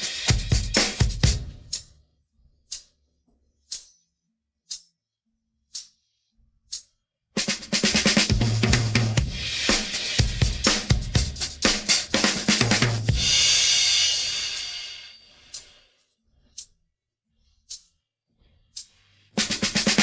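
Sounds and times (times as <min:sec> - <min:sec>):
drum kit playing: 0:00.0 - 0:01.9, 0:07.4 - 0:15.8, 0:19.4 - 0:20.0.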